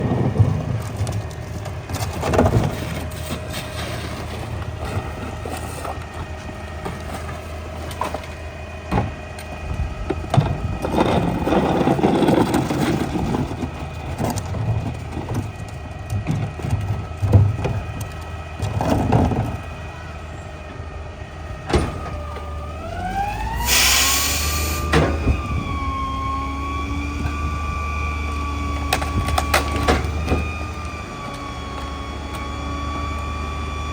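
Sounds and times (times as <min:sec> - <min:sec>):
trash crunching and knocking: 0:00.0 - 0:20.2, 0:20.8 - 0:22.8, 0:28.6 - 0:31.0
hydraulic packer whine: 0:00.0 - 0:33.9
truck diesel engine running: 0:00.0 - 0:33.9
loud hiss: 0:23.6 - 0:24.9.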